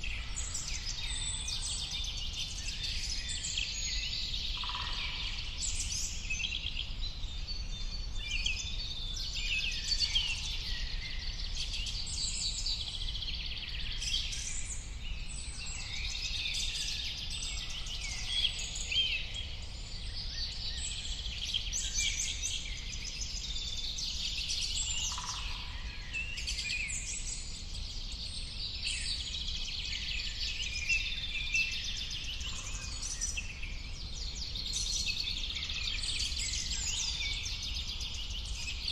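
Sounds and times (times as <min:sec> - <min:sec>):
birds singing and chirping: 0:00.0 - 0:38.9.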